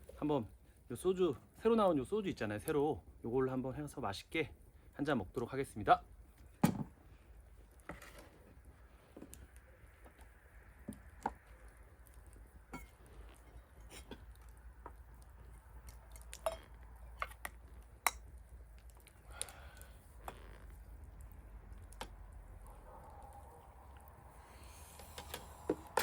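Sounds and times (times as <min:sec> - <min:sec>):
glass and tableware clinking: 0:12.7 - 0:13.0, 0:16.4 - 0:16.7.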